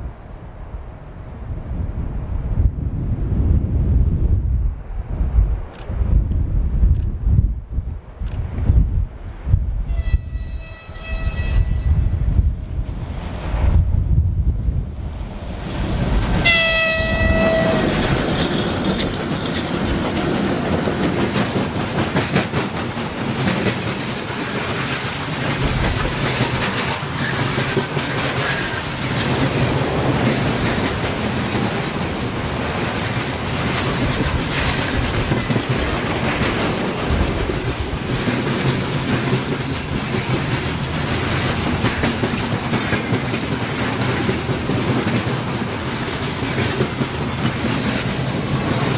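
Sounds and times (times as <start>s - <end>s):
freight train rumbling: 0.0s - 48.9s
high locomotive horn blast: 9.9s - 12.4s, 16.4s - 18.1s
wheels clattering over rail joints: 15.0s - 48.9s.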